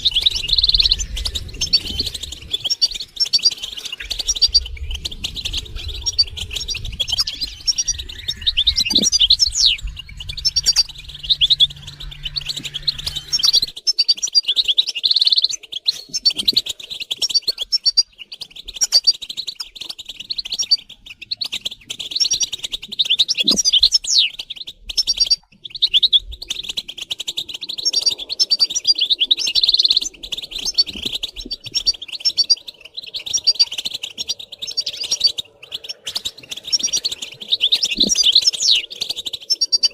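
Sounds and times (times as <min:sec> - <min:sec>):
goldfinches twittering: 0:00.0 - 0:39.9
low hum: 0:04.1 - 0:13.8.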